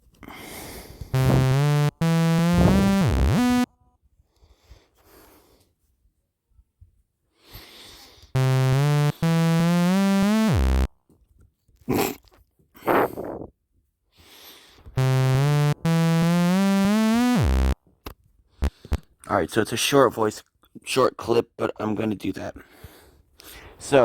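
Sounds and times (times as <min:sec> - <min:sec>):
talkbox synth notes: 0:01.2 - 0:03.7, 0:08.4 - 0:10.9, 0:15.0 - 0:17.8, 0:18.6 - 0:19.0.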